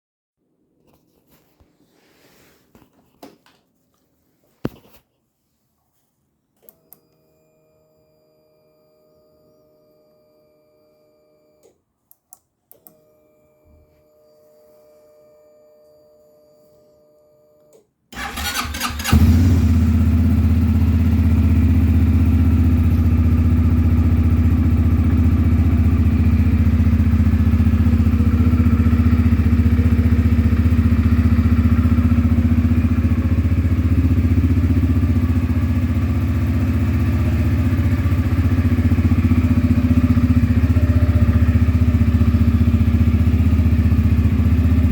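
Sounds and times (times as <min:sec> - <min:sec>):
starter cranking: 0:18.2 - 0:19.2
engine idling: 0:18.2 - 0:44.9.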